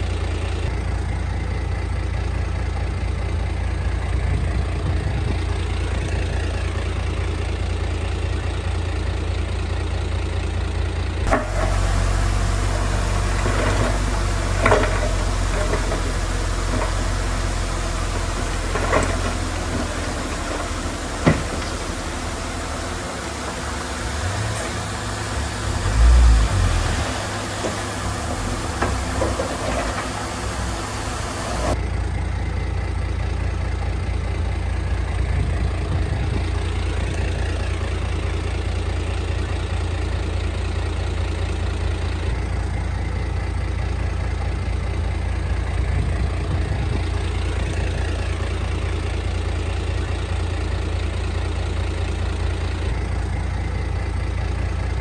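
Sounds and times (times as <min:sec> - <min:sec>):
diesel machinery engine rumble: 0:00.0 - 0:55.0
loud thump: 0:13.4 - 0:22.2.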